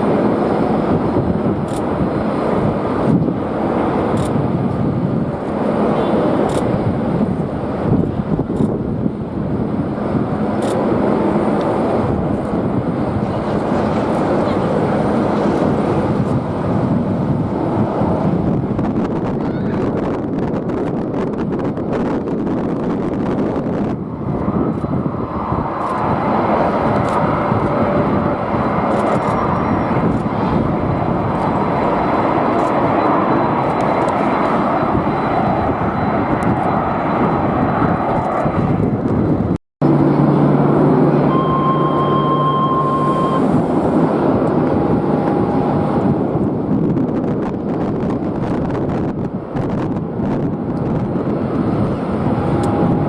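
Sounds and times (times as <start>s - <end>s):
jet airliner engines running: 0.0s - 53.0s
wind on microphone: 0.0s - 53.0s
engine whine tones: 21.6s - 53.0s.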